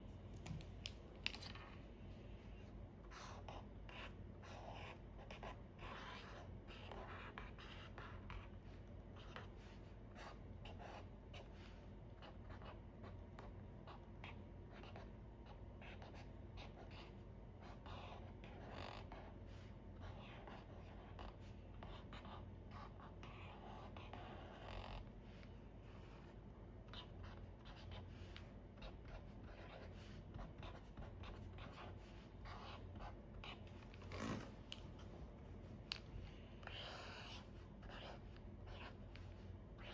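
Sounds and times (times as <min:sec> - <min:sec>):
marker pen on paper: 0:00.0 - 0:39.9.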